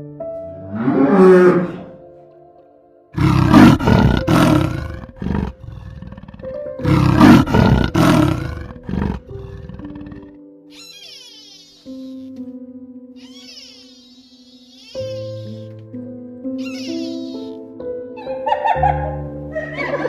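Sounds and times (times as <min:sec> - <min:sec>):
soft music with held tones: 0:00.0 - 0:20.0
big cat roaring: 0:00.6 - 0:02.0, 0:03.2 - 0:10.3.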